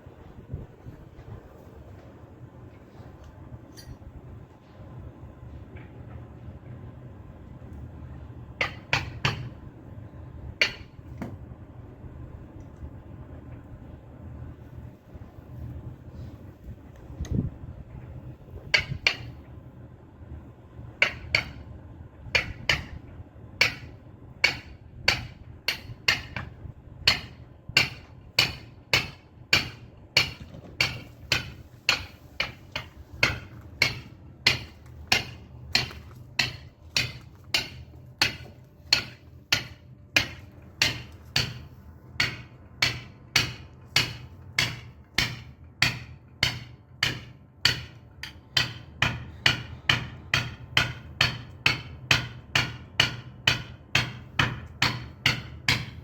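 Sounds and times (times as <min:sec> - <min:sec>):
mallet striking caulking iron: 0:08.6 - 0:09.6, 0:10.6 - 0:11.4, 0:18.7 - 0:19.4, 0:21.0 - 0:21.6, 0:22.4 - 0:23.0, 0:23.6 - 0:56.0.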